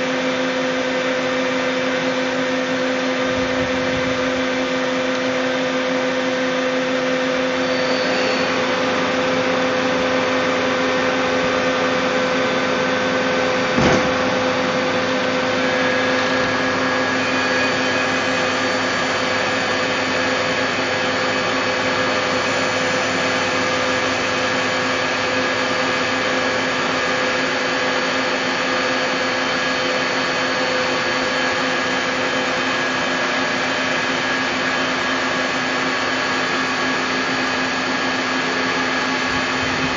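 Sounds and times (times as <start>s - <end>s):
lathe mechanical hum and whine: 0.0s - 39.9s
higher machine tone: 0.9s - 25.8s
single knock: 13.8s - 14.2s.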